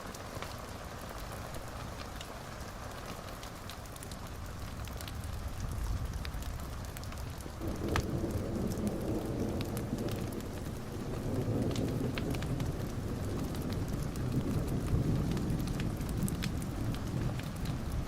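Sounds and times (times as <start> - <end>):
rain falling: 0.0 - 18.0
rolling thunder: 5.2 - 18.0.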